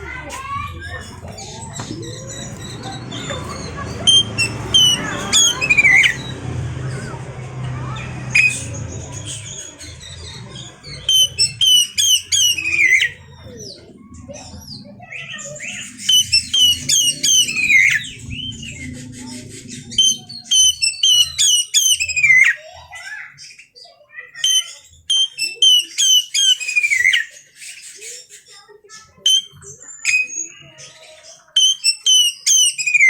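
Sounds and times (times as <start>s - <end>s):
bird whistled song: 0.6s - 7.2s, 7.9s - 22.8s, 23.4s - 28.5s, 29.2s - 30.7s, 31.5s - 33.0s
low hum: 0.6s - 21.4s.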